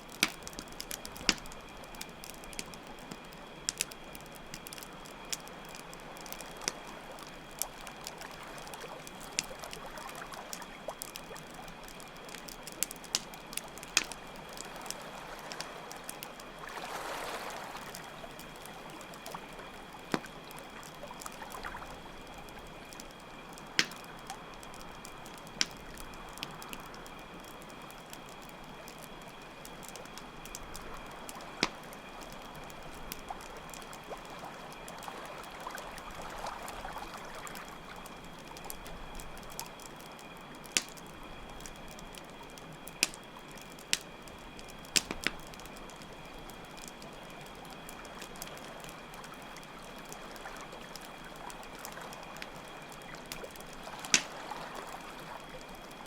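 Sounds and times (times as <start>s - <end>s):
campfire crackling: 0.0s - 56.0s
crickets chirping: 0.0s - 56.0s
flowing water: 13.7s - 24.5s, 48.2s - 56.0s.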